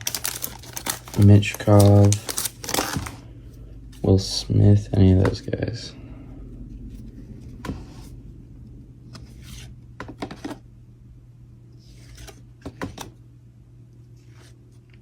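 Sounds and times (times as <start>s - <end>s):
trading cards rustling: 0.0s - 3.2s
low steady hum: 0.0s - 15.0s.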